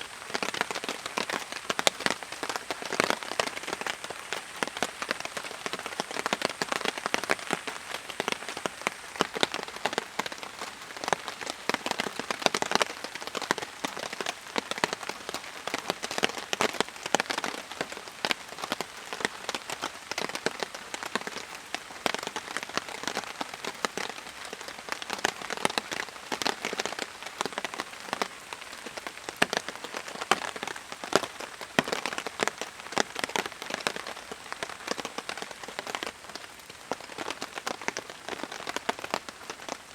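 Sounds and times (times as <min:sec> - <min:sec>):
raindrops striking a surface: 0:00.0 - 0:39.9
steady rain: 0:00.0 - 0:39.9.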